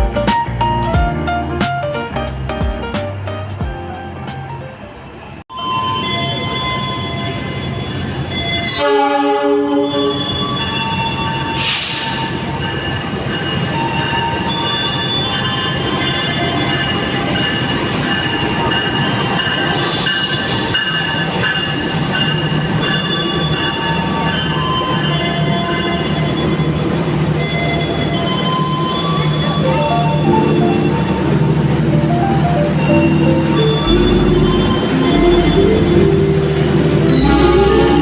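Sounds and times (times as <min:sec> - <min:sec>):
train rumbling on rails: 0:00.0 - 0:38.0
wheel squeal: 0:05.7 - 0:08.9, 0:09.8 - 0:16.8, 0:18.2 - 0:31.5
train horn blast: 0:08.7 - 0:10.3, 0:33.8 - 0:38.0
short hisses: 0:11.6 - 0:12.2.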